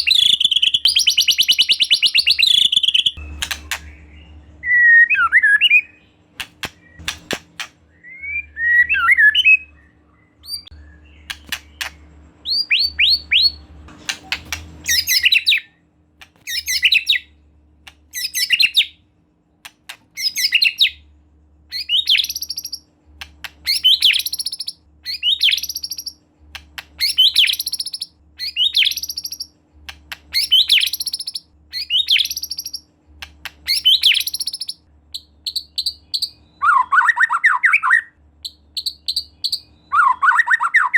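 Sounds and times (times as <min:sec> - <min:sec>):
sharp clicking bird calls: 0:00.0 - 0:04.1, 0:06.4 - 0:07.8, 0:10.4 - 0:15.6, 0:21.7 - 0:36.3
bird singing phrases: 0:00.0 - 0:15.8, 0:16.4 - 0:19.1, 0:19.7 - 0:40.9.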